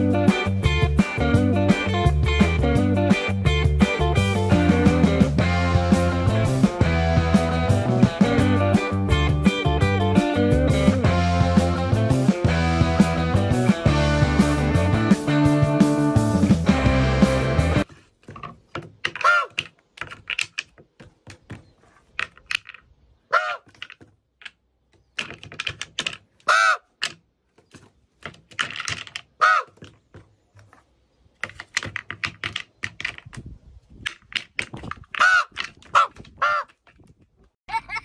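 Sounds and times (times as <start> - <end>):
irregular clicks and taps: 18.2 - 22.8, 23.6 - 30.8, 31.4 - 33.4, 34.0 - 37.2
bird calling: 19.2 - 19.8, 23.2 - 23.7, 26.4 - 26.9, 29.4 - 30.6, 35.2 - 36.7.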